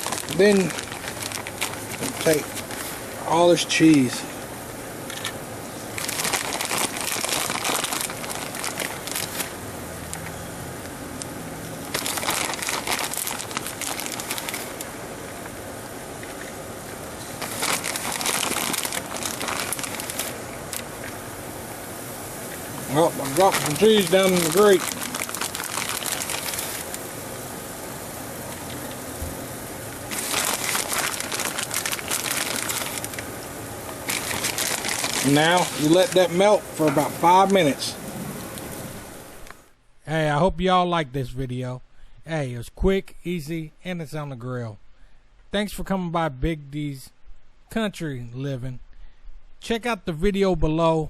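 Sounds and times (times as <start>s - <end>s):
plastic bag crinkling: 0.0s - 4.1s, 5.1s - 10.3s, 11.2s - 15.0s, 17.2s - 21.2s, 22.7s - 27.2s, 29.9s - 37.8s
faint crackle: 6.0s - 9.6s, 11.8s - 14.9s, 17.2s - 21.2s, 23.3s - 27.1s, 30.1s - 33.3s, 33.9s - 36.2s.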